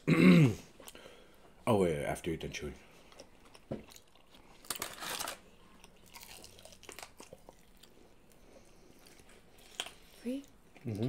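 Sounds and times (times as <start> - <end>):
chewing: 2.9 - 11.0
crunching bites of fried chicken: 6.1 - 7.9.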